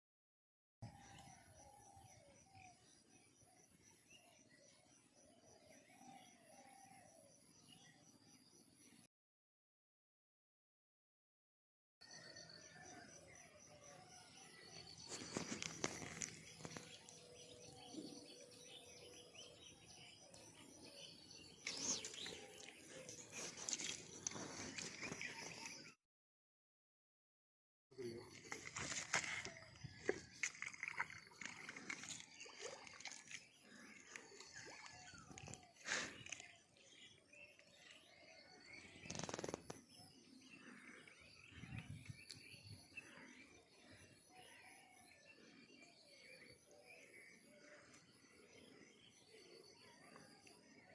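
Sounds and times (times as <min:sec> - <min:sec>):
faint bird chirps: 0:12.0 - 0:26.0, 0:28.0 - 0:50.9.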